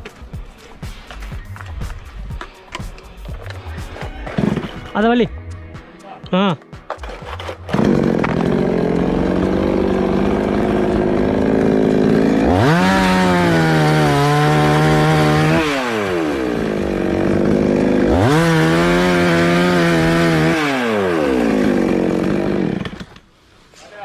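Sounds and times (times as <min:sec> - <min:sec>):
chainsaw revving: 0:07.0 - 0:23.2.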